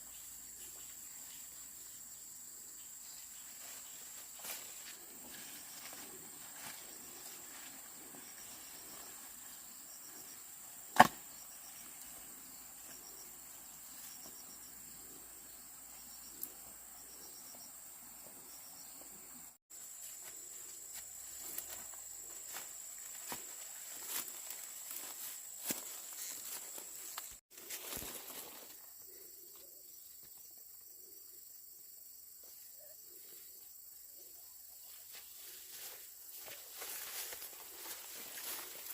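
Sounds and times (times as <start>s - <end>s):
crickets and insects chirping: 0.0s - 38.9s
sharp wooden knock: 11.0s - 11.2s
rustles or steps: 35.0s - 38.9s.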